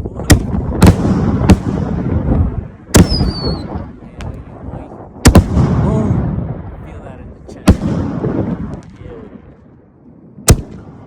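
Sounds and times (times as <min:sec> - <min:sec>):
echoing rumble: 0:00.0 - 0:11.0
falling firework whistle: 0:03.0 - 0:03.7
firework shells bursting: 0:03.0 - 0:04.4.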